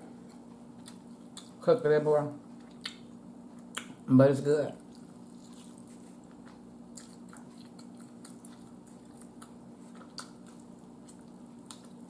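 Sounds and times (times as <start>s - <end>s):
faint steady hum: 0.0s - 12.0s
person chewing meat: 0.2s - 1.6s, 4.8s - 12.0s.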